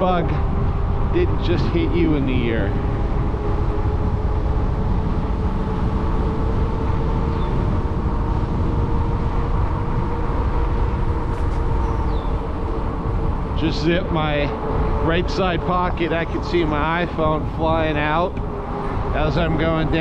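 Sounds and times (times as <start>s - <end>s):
electric motor hum: 0.0s - 20.0s
wind rush on microphone: 0.0s - 20.0s.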